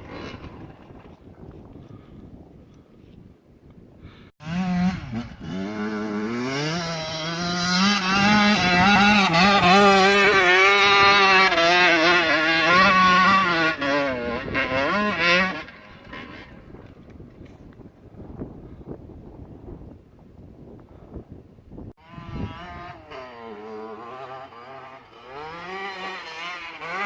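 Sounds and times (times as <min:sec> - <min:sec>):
dirt bike engine revving: 0:04.4 - 0:17.0, 0:22.0 - 0:27.0.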